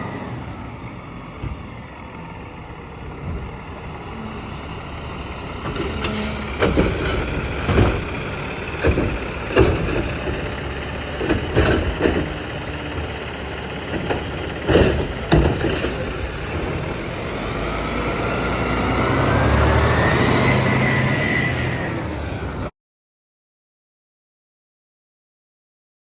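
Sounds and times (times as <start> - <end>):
garbage truck running: 0.0 - 22.7
loud metal clanks and bangs: 1.4 - 17.5.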